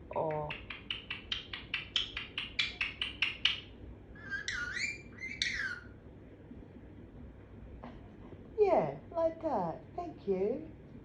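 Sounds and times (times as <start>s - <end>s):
parrot chirping and calling: 0.0s - 6.0s.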